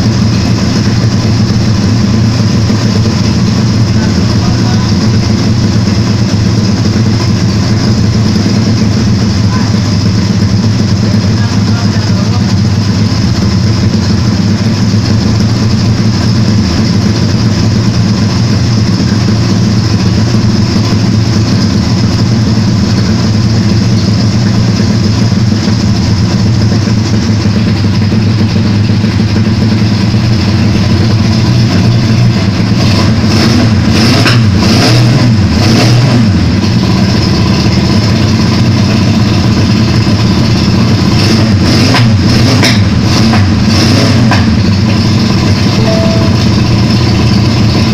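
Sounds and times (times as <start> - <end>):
engine running loud: 0.0 - 47.9.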